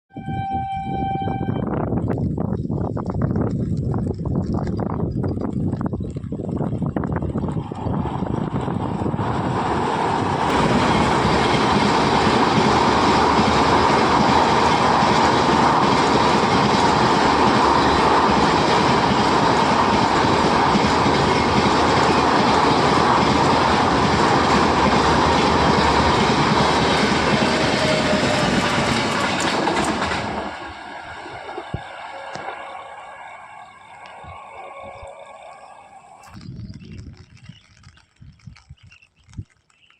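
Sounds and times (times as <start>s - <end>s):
train wheels rushing on rails: 6.8s - 36.3s.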